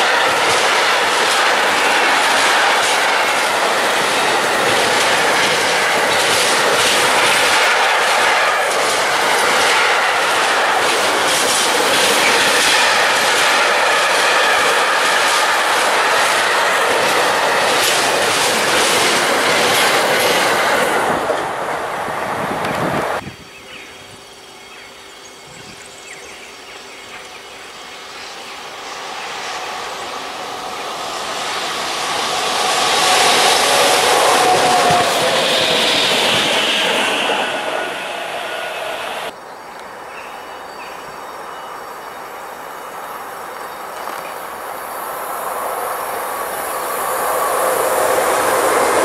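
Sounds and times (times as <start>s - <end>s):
clacks over rail joints: 0.0s - 21.5s
freight train wheels on rails: 0.0s - 23.3s, 25.4s - 49.0s
distant train approaching: 0.0s - 49.0s.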